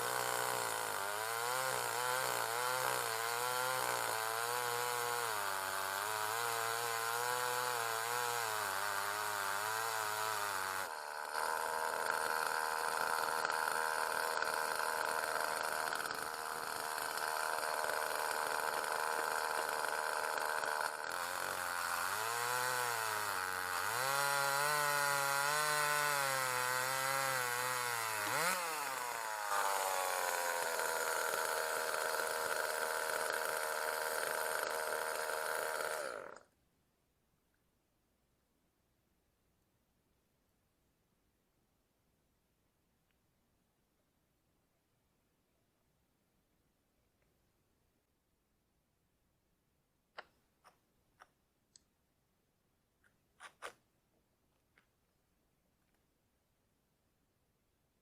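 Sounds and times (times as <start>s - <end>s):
chainsaw cutting log: 0.0s - 36.5s, 53.4s - 53.8s.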